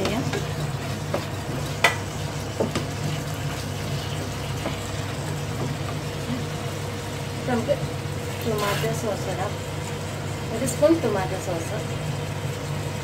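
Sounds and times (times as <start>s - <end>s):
food sizzling in a wok: 0.0s - 13.0s.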